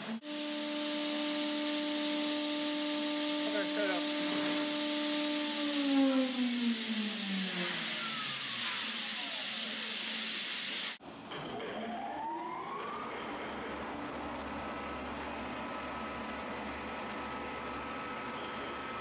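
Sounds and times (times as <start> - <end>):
router spindle whining: 0.0 - 11.0.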